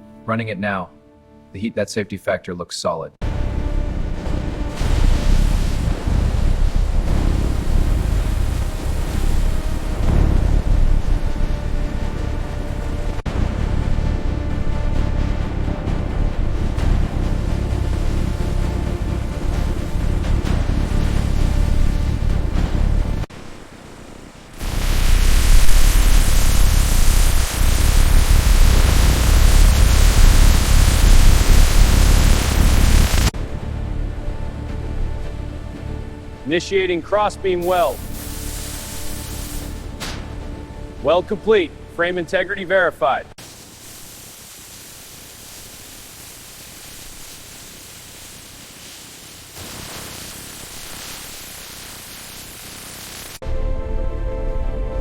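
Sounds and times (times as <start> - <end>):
music with deep bass: 3.2 - 23.3
heavy low rumble: 3.2 - 36.4
loud rushing noise: 3.3 - 33.6, 37.6 - 40.9
steady hiss: 4.2 - 33.4, 34.8 - 41.9, 43.3 - 53.4.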